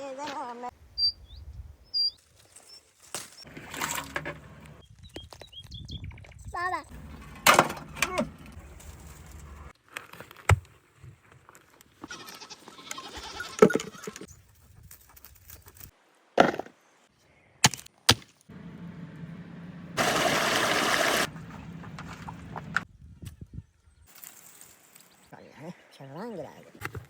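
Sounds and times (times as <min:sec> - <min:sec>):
animals bleating: 0:12.1 - 0:14.2.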